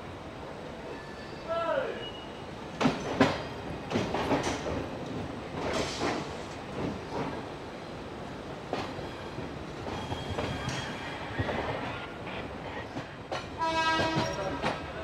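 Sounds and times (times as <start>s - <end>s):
train wheels clicking over rail joints: 2.8s - 7.5s, 9.7s - 14.9s
train horn: 13.6s - 14.6s.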